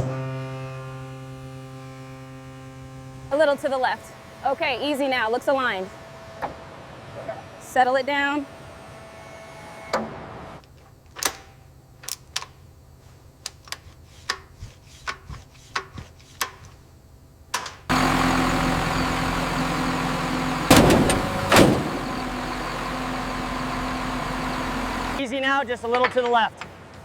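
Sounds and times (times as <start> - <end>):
loud steady machine noise: 0.0 - 10.5, 17.9 - 25.2
heavy bangs: 17.9 - 25.2
low hum: 17.9 - 25.2.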